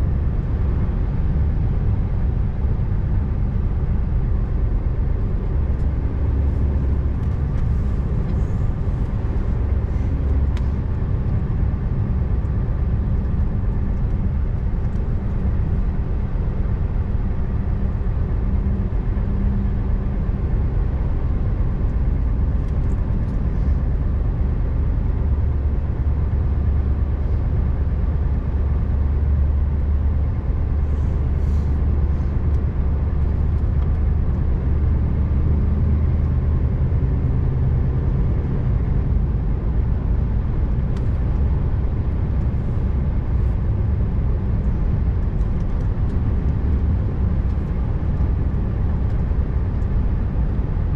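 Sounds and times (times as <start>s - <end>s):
road noise: 0.0s - 50.9s
truck diesel engine hum: 0.0s - 50.9s
faint light ticks: 33.6s - 34.0s, 40.9s - 41.2s.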